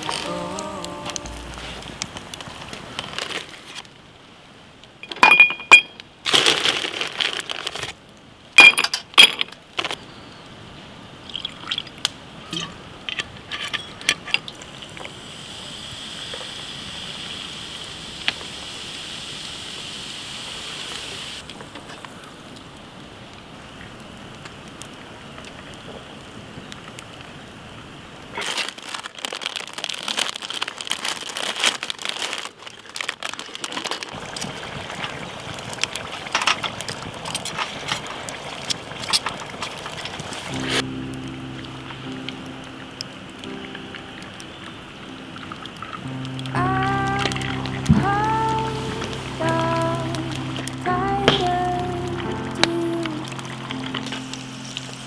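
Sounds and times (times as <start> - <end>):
cup clinking: 5.0 - 6.0.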